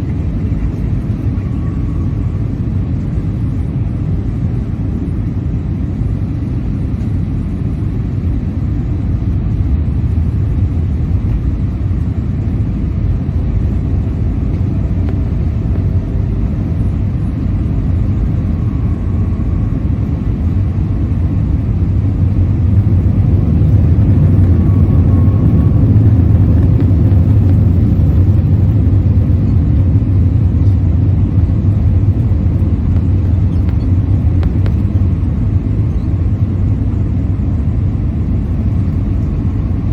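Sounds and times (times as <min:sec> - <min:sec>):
aircraft engines rumbling in cabin: 0:00.0 - 0:39.9
rushing air: 0:14.0 - 0:35.8.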